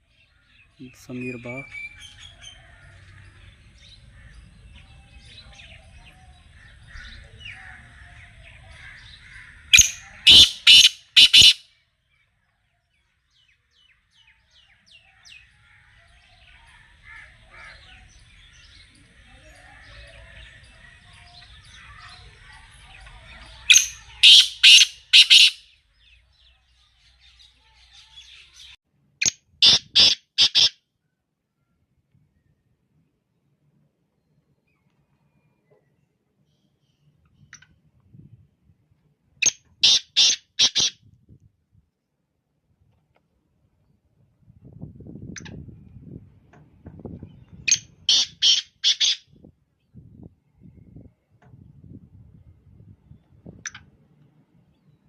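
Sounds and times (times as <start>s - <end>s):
faint chirping of small birds: 0.0s - 41.4s
francolin calling: 9.5s - 11.6s, 23.7s - 25.7s.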